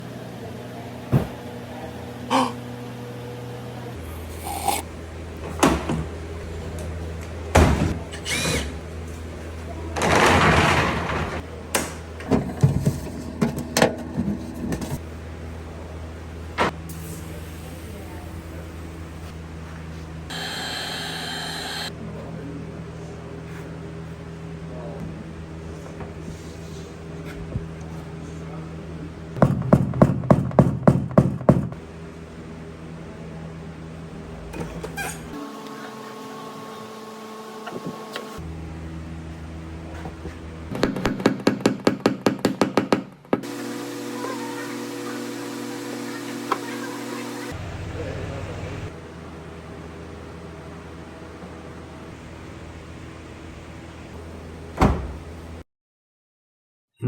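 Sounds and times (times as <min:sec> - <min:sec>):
steady low hum: 0:00.0 - 0:10.0
brief squeak: 0:08.1 - 0:08.8.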